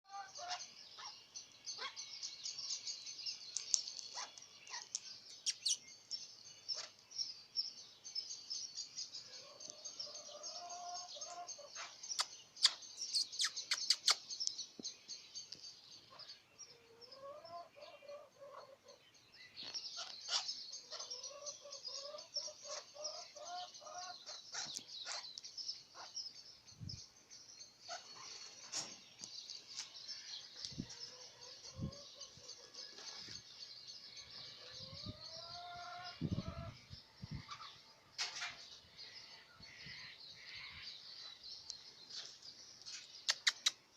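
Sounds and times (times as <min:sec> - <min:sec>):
parrots twittering chatter: 0:20.0 - 0:23.0
sharp clicks: 0:43.3 - 0:43.8.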